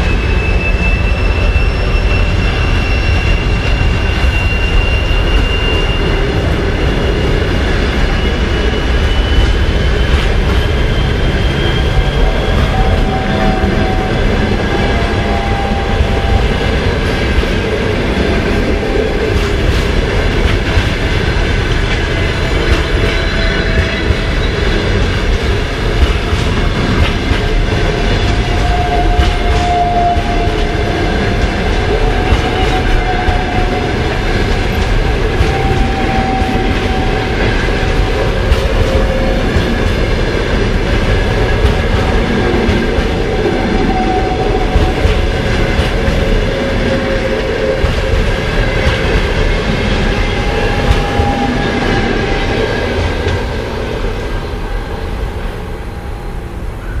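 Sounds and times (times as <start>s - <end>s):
wheel squeal: 0.0s - 17.4s, 22.1s - 25.1s, 27.8s - 39.9s.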